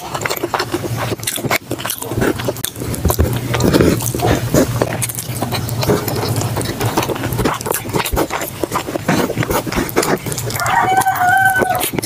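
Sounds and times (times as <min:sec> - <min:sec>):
wet chewing and lip smacking: 0:00.0 - 0:12.0.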